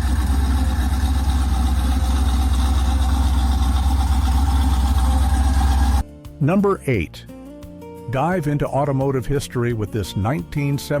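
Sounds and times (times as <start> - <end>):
car engine running steadily: 0.0 - 6.0.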